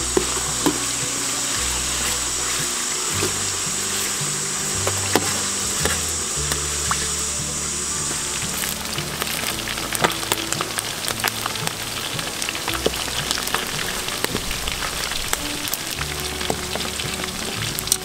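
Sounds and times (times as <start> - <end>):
frying in hot oil with pops: 8.2 - 18.0.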